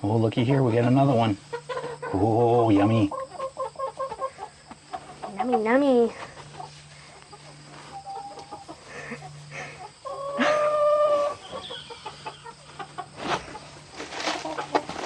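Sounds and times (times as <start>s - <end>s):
chickens clucking: 0.4s - 15.0s
chicken drawn-out call: 6.5s - 15.0s.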